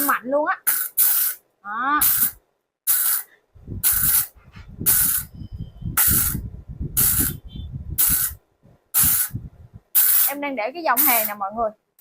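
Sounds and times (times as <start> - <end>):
welding arc crackling and hissing: 2.0 - 4.3, 9.0 - 9.3, 11.0 - 11.4.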